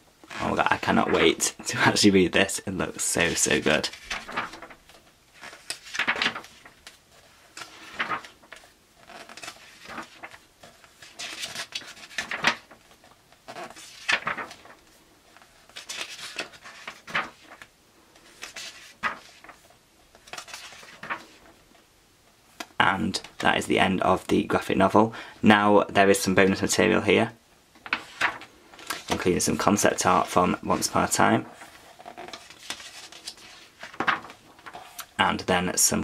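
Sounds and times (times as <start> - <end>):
book pages turning: 0.2 - 1.5, 3.0 - 21.8, 27.8 - 35.2.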